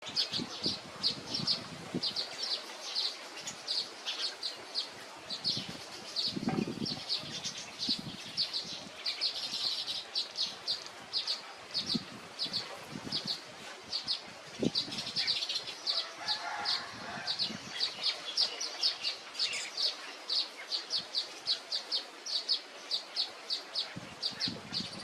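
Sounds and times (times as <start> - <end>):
small songbird chirping: 0.0 - 25.0.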